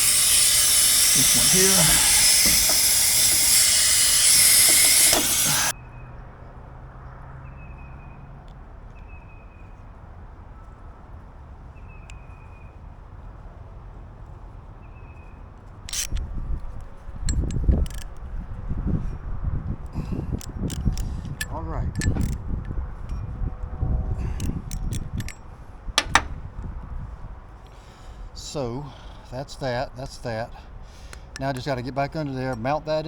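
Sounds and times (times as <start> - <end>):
compressed air hissing: 0.0 - 5.7, 26.0 - 26.4
metal parts clinking: 0.0 - 5.7, 20.7 - 22.4, 26.0 - 26.4
low thumps of parts handled: 26.0 - 26.5.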